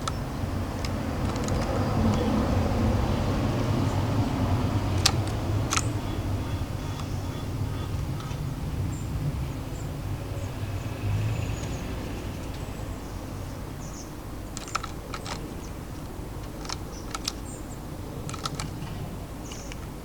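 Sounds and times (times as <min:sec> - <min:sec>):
birds pecking at a feeder: 0:00.0 - 0:08.7, 0:13.8 - 0:20.0
distant city traffic rumble: 0:00.0 - 0:20.0
faint high bird chirps: 0:05.8 - 0:09.1.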